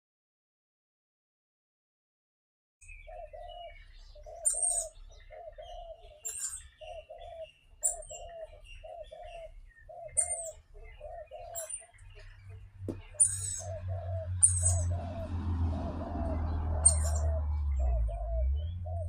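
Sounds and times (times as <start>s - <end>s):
high-pitched bird chirps: 2.8s - 15.3s, 16.8s - 19.0s
dove cooing: 2.9s - 19.0s.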